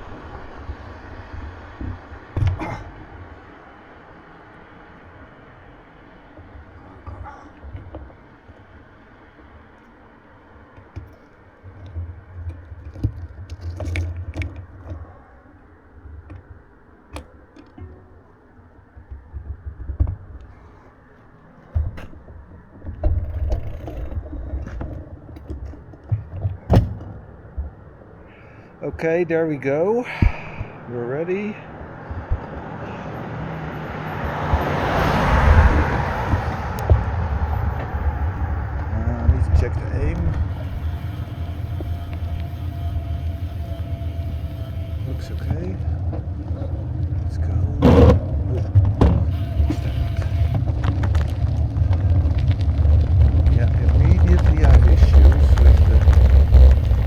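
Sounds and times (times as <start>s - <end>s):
vehicle rolling over rough road: 0.0s - 57.0s
clicks and knocks of handling gear: 10.6s - 28.0s
rattles and knocks: 21.5s - 28.0s, 34.2s - 57.0s
low rumble: 34.2s - 57.0s.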